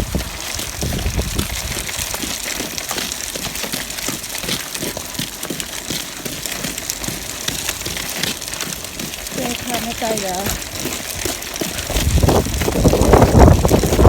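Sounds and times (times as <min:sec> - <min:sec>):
wind buffeting microphone: 0:00.0 - 0:02.4, 0:09.4 - 0:14.0.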